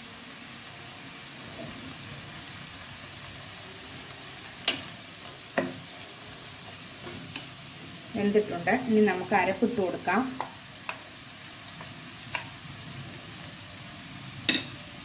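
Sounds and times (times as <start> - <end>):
vegetables sizzling in a pan: 0.0 - 15.0
wooden spatula knocking on pan: 5.6 - 5.8.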